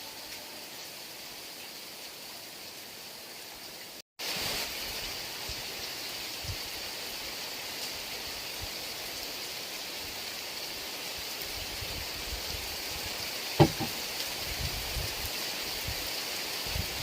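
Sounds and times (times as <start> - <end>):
heavy rain hissing: 0.0 - 17.0
sharp knocks: 13.6 - 14.0.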